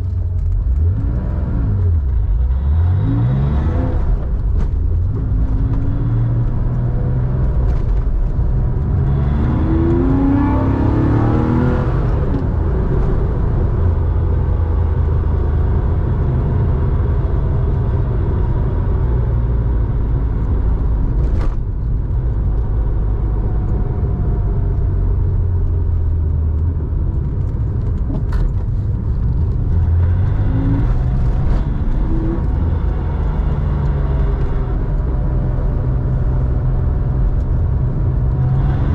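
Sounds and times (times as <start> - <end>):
car engine revving: 0.0 - 18.0, 26.5 - 38.9.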